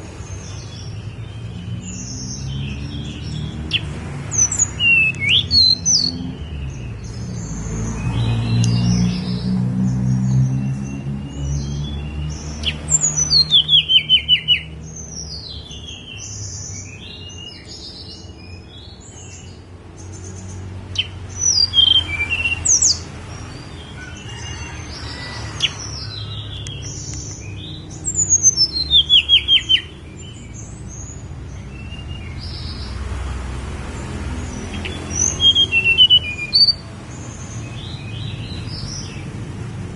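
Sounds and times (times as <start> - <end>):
bird chirps and whistles: 35.2 - 36.8.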